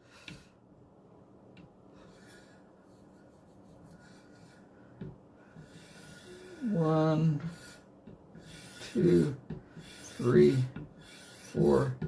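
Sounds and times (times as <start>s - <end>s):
faint rubbing: 5.5s - 12.0s.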